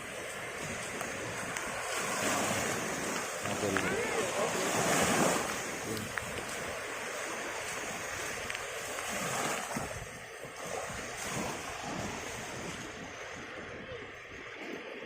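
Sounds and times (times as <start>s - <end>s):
sea surf washing on shore: 0.0s - 15.0s
wind buffeting microphone: 0.0s - 15.0s.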